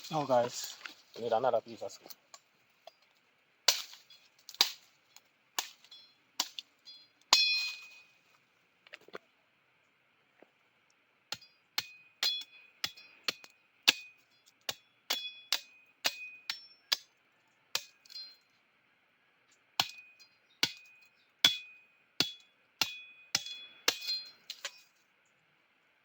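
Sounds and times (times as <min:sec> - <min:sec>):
metal blade chopping wood: 0:03.7 - 0:04.9, 0:05.6 - 0:06.7, 0:07.3 - 0:08.0, 0:11.3 - 0:17.1, 0:19.8 - 0:24.9.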